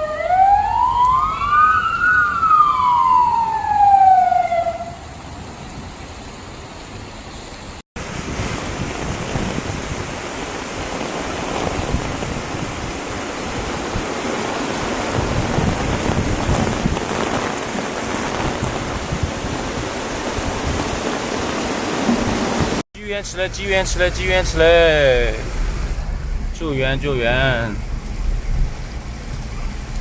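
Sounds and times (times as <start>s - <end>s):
emergency vehicle siren wailing: 0.0s - 5.2s
heavy rain hissing: 7.2s - 30.0s.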